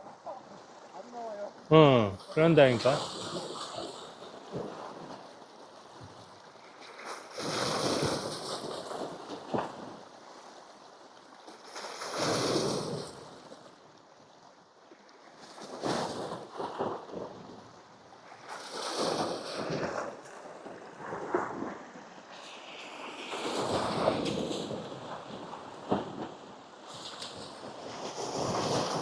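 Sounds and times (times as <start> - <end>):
waves washing against rocks: 0.0 - 14.0, 15.3 - 29.0
wind on microphone: 15.6 - 29.0.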